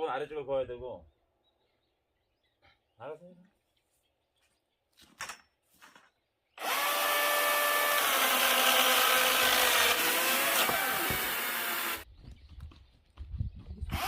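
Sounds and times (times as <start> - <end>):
chainsaw cutting log: 6.6 - 12.0.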